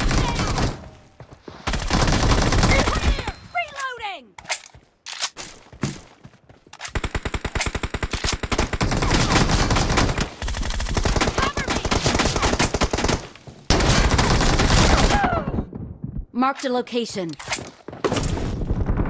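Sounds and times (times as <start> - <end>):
video game automatic gunfire: 1.7 - 3.2, 6.9 - 15.2.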